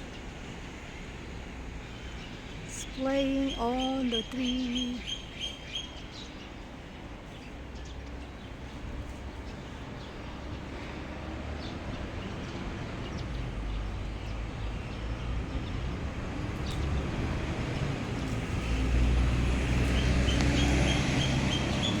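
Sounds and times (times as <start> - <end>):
vehicle engine approaching: 7.8 - 22.0.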